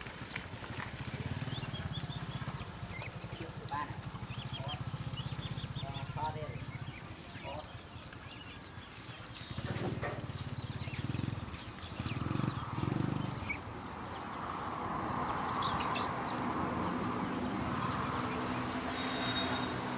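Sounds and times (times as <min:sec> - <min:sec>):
ducklings peeping: 0:00.7 - 0:19.7.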